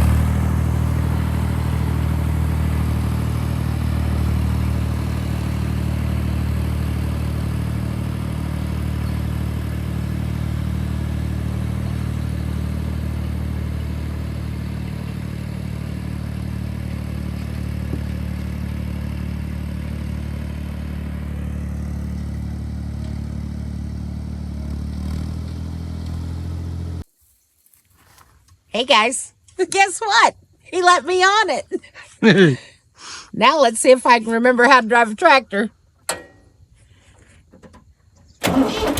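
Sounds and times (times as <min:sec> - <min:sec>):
tractor diesel engine running: 0:00.0 - 0:27.1, 0:33.4 - 0:38.9.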